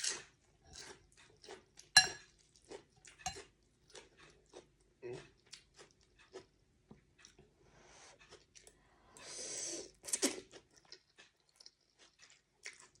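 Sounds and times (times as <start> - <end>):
wet chewing: 0.7 - 6.6, 8.2 - 8.8, 10.0 - 13.0.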